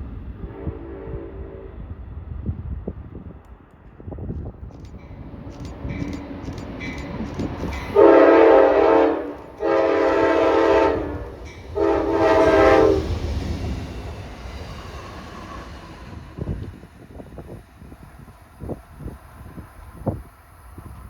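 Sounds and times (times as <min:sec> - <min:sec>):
train low rumble: 0:00.0 - 0:21.0
locomotive air horn blasts: 0:00.4 - 0:01.8, 0:07.9 - 0:13.3.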